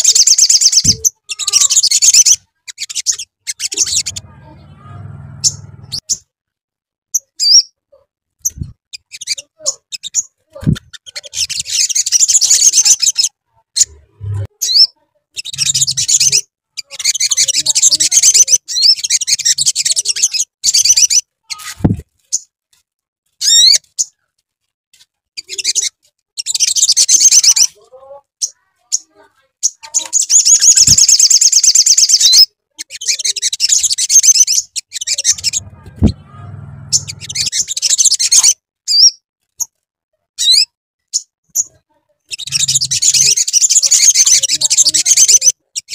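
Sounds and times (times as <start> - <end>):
bird chattering trills: 0.0 - 4.7, 8.5 - 21.2, 28.4 - 39.0, 41.6 - 45.9.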